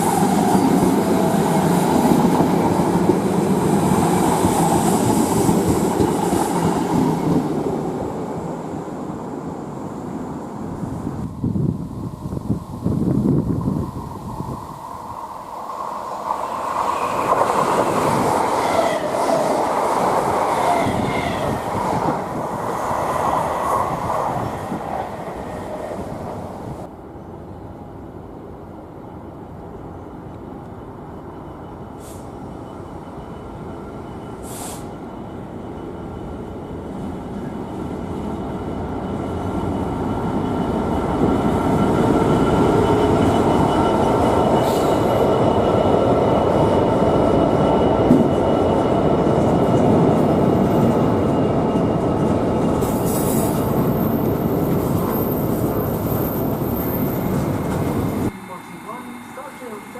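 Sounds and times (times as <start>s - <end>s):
diesel locomotive engine: 0.0s - 59.9s
train wheel and rail noise: 0.0s - 59.9s
short high hisses: 34.4s - 34.9s.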